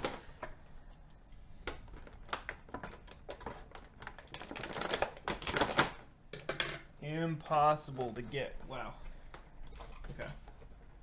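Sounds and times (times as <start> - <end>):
plastic packaging crinkling: 1.9 - 6.0.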